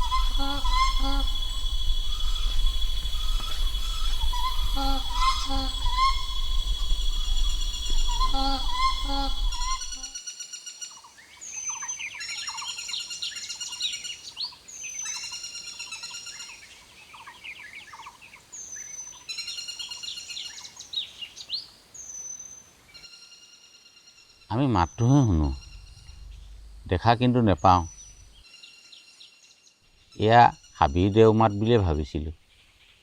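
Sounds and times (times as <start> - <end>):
low rumble: 0.0 - 10.1, 24.8 - 28.4
bird calls: 0.0 - 10.2, 24.5 - 28.4
high insect drone: 0.0 - 10.2, 24.5 - 28.4
short whistled note: 0.0 - 10.2.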